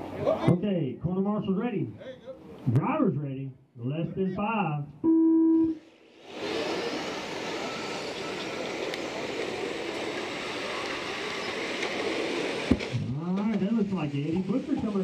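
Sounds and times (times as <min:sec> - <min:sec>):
electronic start tone: 0:05.0 - 0:05.8, 0:07.6 - 0:08.7
racing trucks whirring: 0:05.7 - 0:15.0.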